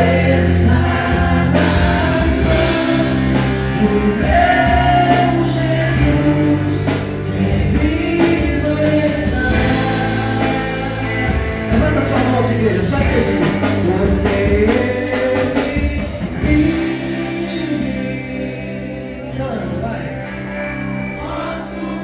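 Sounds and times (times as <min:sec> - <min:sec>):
drums keeping a steady beat: 0:00.0 - 0:18.5
bass: 0:00.0 - 0:22.0
guitar: 0:00.0 - 0:22.0
people singing: 0:00.0 - 0:22.0.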